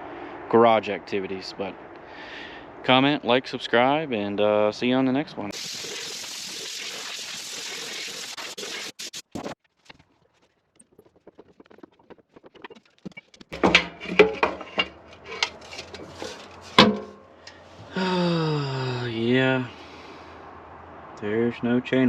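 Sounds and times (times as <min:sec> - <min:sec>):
steady hiss: 0:05.5 - 0:09.1
metal clanks and knocks: 0:13.5 - 0:17.3.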